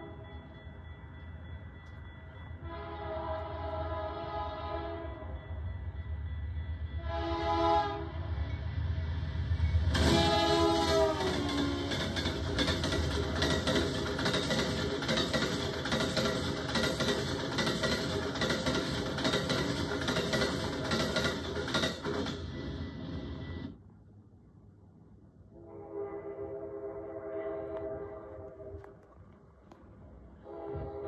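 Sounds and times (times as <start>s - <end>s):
train horn chord: 0.0s - 0.4s, 2.6s - 5.5s, 7.0s - 8.4s, 9.9s - 12.0s, 25.5s - 29.0s, 30.4s - 31.0s
train wheels rushing on rail: 1.7s - 23.8s.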